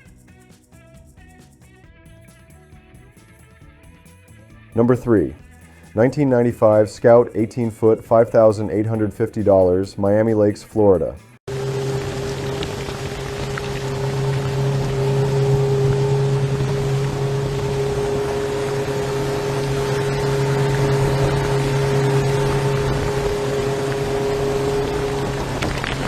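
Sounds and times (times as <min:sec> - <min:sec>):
outboard motor humming: 0:11.5 - 0:26.0
water and wind noise: 0:11.5 - 0:26.0.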